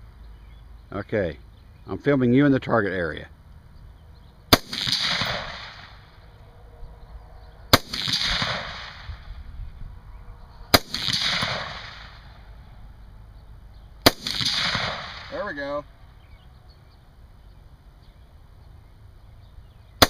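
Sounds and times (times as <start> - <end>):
rifle shots with echo: 4.5 - 6.2, 7.7 - 9.3, 10.7 - 12.4, 14.0 - 15.8.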